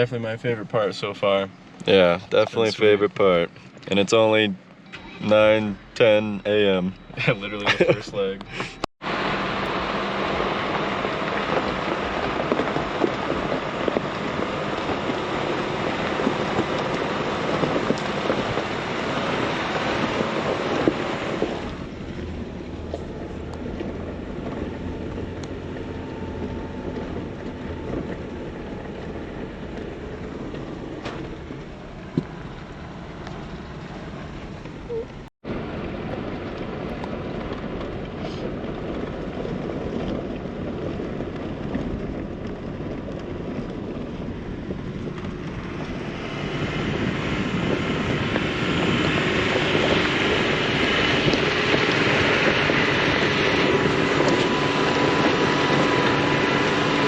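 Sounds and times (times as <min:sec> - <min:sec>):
vehicle driving on dirt trail: 0:00.0 - 0:57.0.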